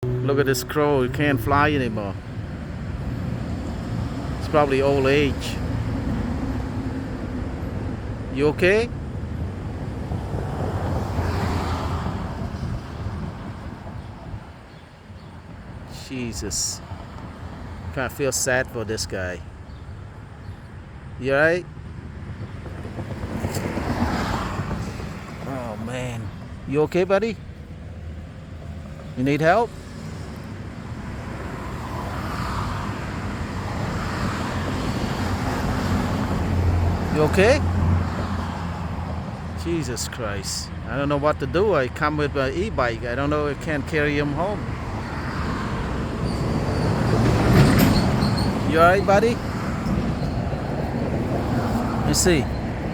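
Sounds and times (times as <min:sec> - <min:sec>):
vehicle passing by: 0:00.0 - 0:08.8, 0:09.4 - 0:13.9, 0:22.7 - 0:40.7, 0:44.0 - 0:52.9
car approaching: 0:00.0 - 0:20.6, 0:21.3 - 0:52.9
wind rumble on microphone: 0:09.0 - 0:14.9, 0:22.0 - 0:25.5.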